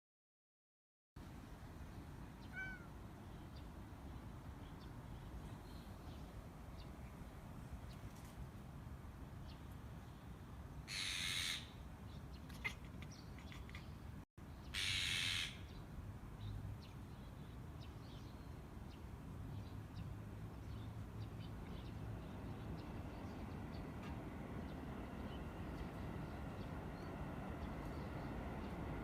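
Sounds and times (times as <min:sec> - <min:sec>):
harsh bird calls: 0:10.9 - 0:15.7.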